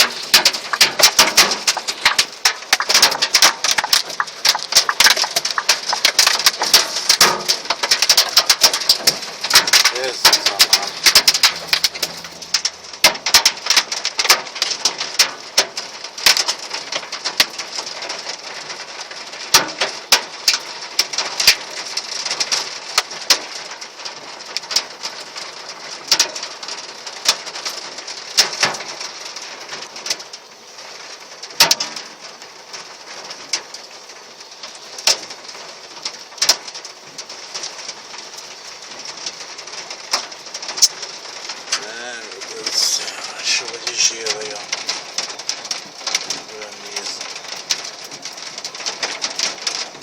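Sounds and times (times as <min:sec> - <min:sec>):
hailstones striking hard surface: 0:00.0 - 0:50.0
hiss of falling ice and rain: 0:00.0 - 0:50.0.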